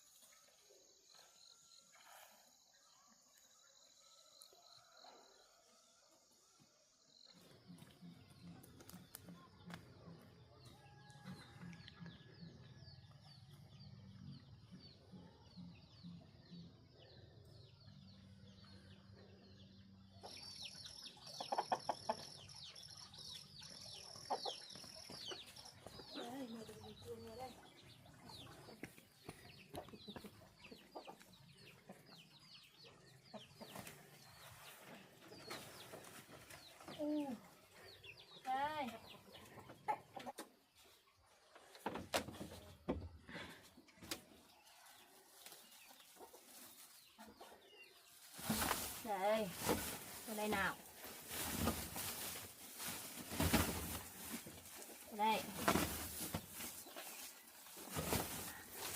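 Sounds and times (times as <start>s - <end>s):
chickens clucking: 21.2s - 22.6s, 24.0s - 26.0s, 28.1s - 37.0s, 39.1s - 41.0s, 45.4s - 49.0s.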